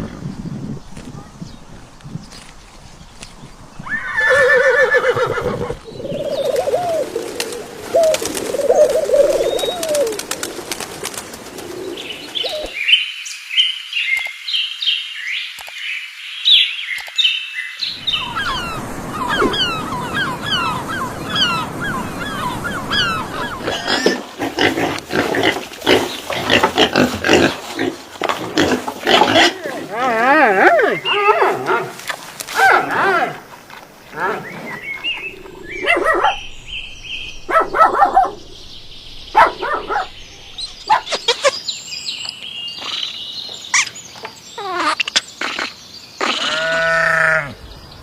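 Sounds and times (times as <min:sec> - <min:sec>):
bird calls: 0:00.3 - 0:10.6, 0:11.2 - 0:28.0, 0:33.9 - 0:48.0
rapid high bird chirps: 0:34.5 - 0:44.0.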